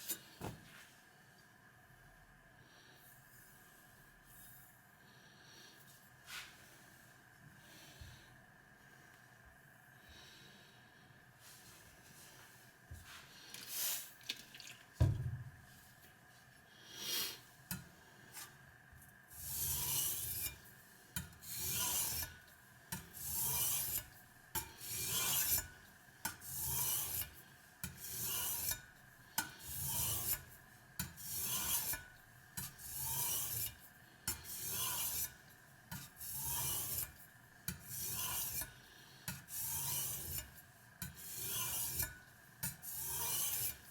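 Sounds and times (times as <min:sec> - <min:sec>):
knock: 0:15.0 - 0:15.4
knife scraping on sharpening stone: 0:19.4 - 0:20.6, 0:21.2 - 0:38.7, 0:39.3 - 0:43.9.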